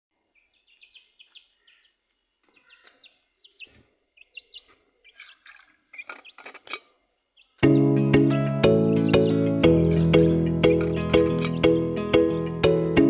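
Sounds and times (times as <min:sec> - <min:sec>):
chick peeping: 0:00.4 - 0:06.4.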